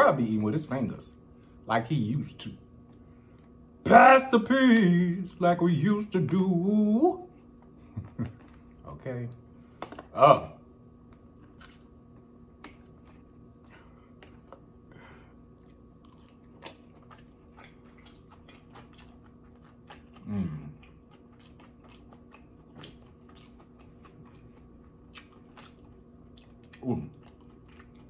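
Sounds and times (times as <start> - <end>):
close-miked chewing: 11.1 - 28.0
hum of enjoyment: 20.2 - 21.0.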